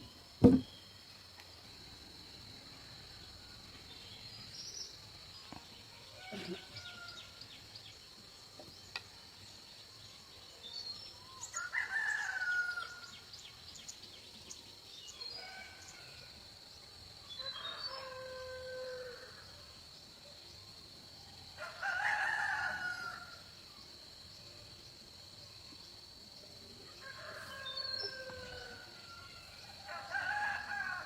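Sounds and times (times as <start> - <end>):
rooster crowing: 17.4 - 19.4, 21.6 - 23.4, 26.9 - 31.0.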